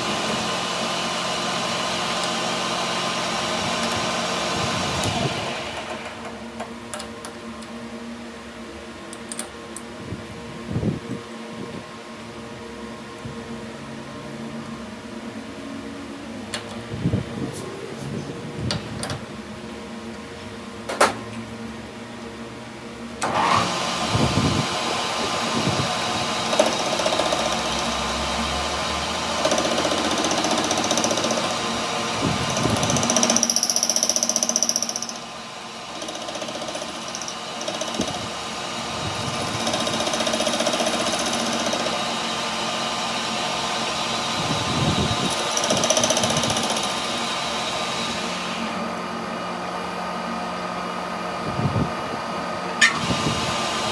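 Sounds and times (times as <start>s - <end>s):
power tool running: 0.0s - 6.4s, 23.2s - 49.0s, 52.8s - 53.9s
sharp click: 52.8s - 53.0s.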